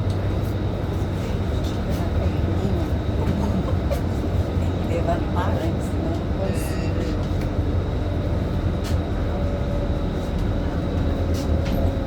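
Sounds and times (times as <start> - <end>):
bus engine rumbling: 0.0 - 12.0.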